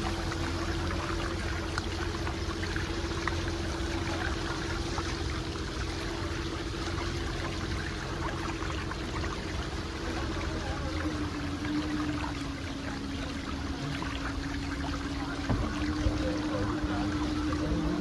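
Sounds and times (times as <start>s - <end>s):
boat engine hum: 0.0s - 18.0s
water splashing along hull: 0.0s - 18.0s.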